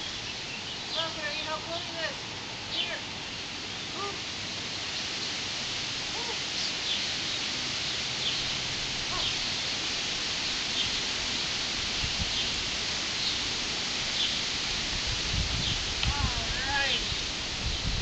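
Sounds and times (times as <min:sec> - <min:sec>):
bird chirping: 0:00.0 - 0:05.4, 0:06.2 - 0:09.8
steady outdoor hiss: 0:00.0 - 0:18.0.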